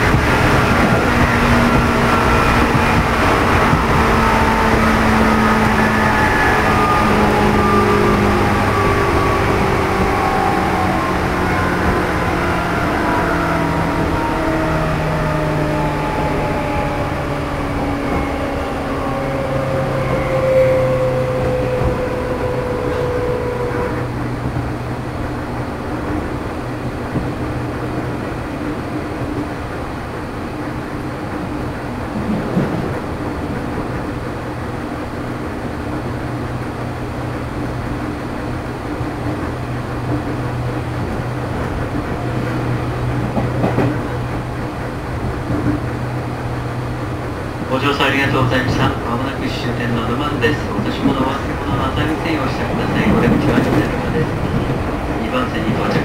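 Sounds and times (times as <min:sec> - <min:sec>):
train motor whine: 0:00.0 - 0:27.4
train running hum: 0:00.0 - 0:56.0.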